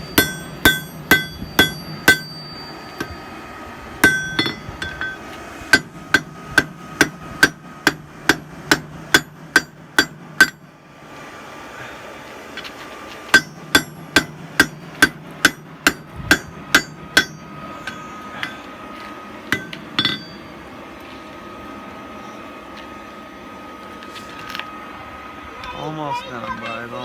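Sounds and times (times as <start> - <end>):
hammer blows on anvil: 0.0 - 3.4, 4.0 - 10.7, 13.3 - 18.8, 19.5 - 20.6
faint steady tone: 0.0 - 6.3.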